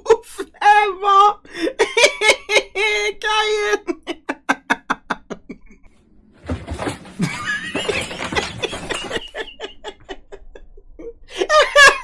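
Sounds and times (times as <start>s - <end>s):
person laughing: 1.5s - 5.9s, 7.2s - 12.0s.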